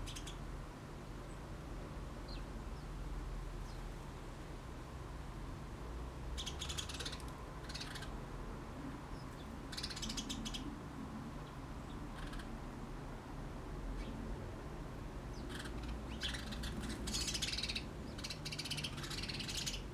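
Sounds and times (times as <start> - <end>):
small birds chirping: 0.0 - 0.5, 2.2 - 3.0, 3.6 - 3.9, 6.3 - 8.2, 8.9 - 10.8, 11.4 - 12.6, 13.9 - 14.2, 15.2 - 19.9
low outdoor rumble: 0.0 - 19.9.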